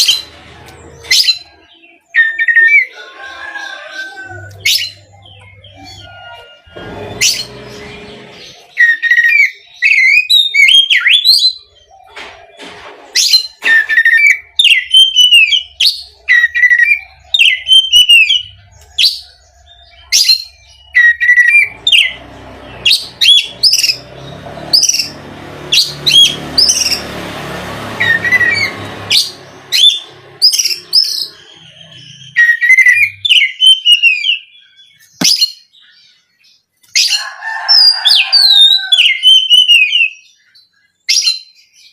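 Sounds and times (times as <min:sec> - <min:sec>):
songbird whistling and chattering: 0:28.0 - 0:35.7.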